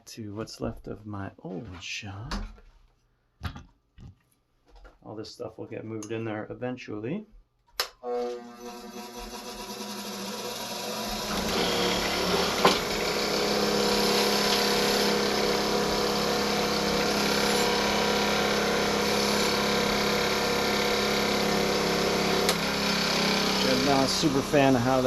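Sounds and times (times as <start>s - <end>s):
motor-driven wire wheel spinning: 8.2s - 25.0s.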